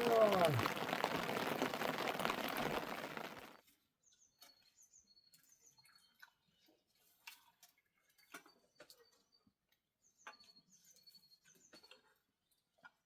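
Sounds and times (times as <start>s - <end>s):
loud steady hiss: 0.0s - 3.5s.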